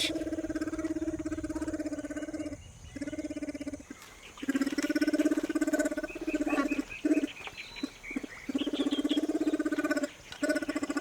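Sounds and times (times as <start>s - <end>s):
bear pulsing buzzing call: 0.0s - 2.0s.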